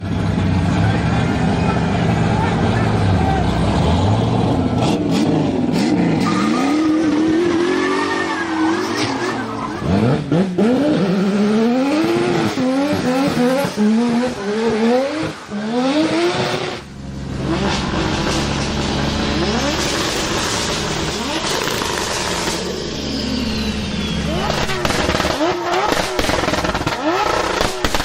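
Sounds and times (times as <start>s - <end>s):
car engine revving hard: 3.6s - 28.0s
tyre squeal: 6.1s - 10.2s, 19.4s - 25.8s.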